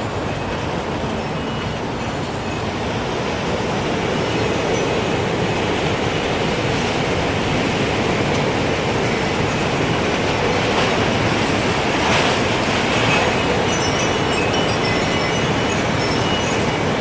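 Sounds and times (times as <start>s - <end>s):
wind chime tones: 12.9s - 17.0s.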